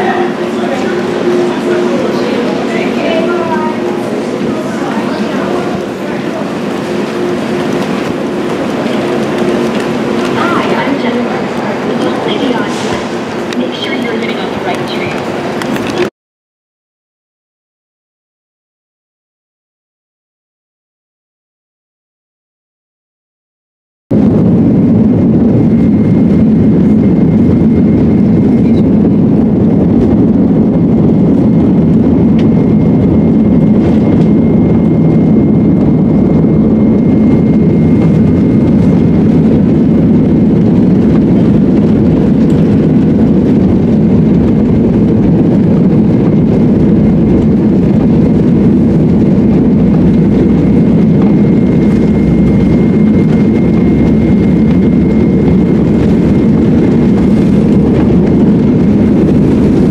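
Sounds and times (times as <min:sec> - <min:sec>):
loud vehicle rumble: 0:00.0 - 0:16.1, 0:24.1 - 0:59.9
faint high whine: 0:46.3 - 0:57.3.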